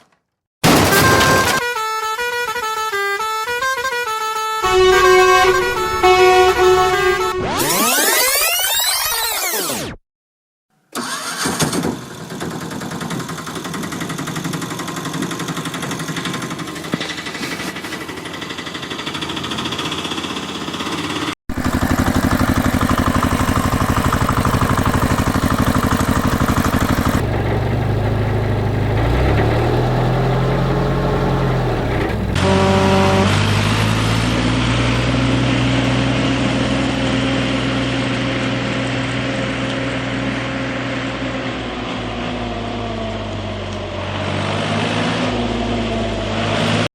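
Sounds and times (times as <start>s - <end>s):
deeper engine revving: 4.6s - 8.1s, 21.5s - 46.9s
engine running: 4.6s - 8.5s, 11.0s - 46.9s.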